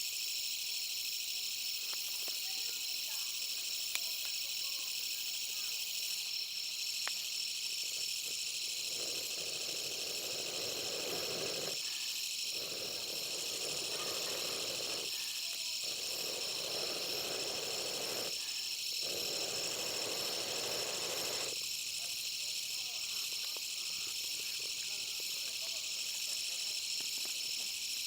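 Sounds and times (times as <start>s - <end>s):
insects shrilling: 0.1s - 28.0s
soft murmur: 7.9s - 21.6s.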